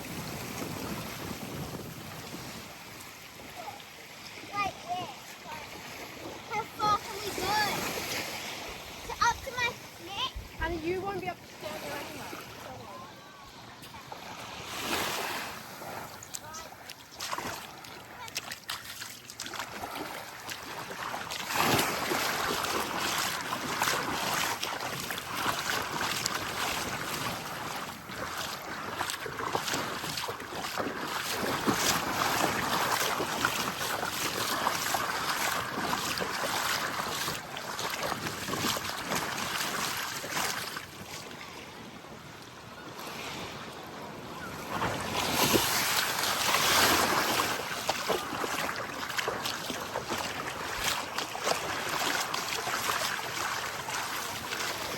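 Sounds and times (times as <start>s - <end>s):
wind buffeting microphone: 0.0s - 3.6s
waves breaking on sand: 0.0s - 54.9s.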